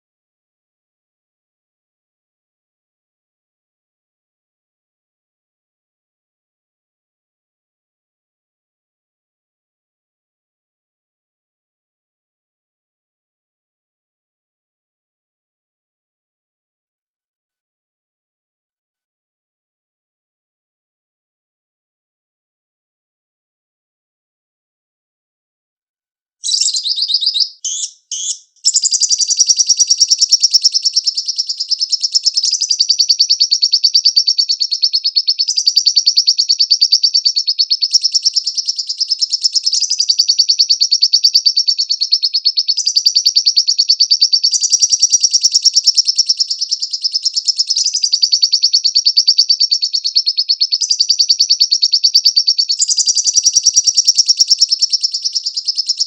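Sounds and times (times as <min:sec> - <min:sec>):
bird chattering trill: 0:26.4 - 0:56.0.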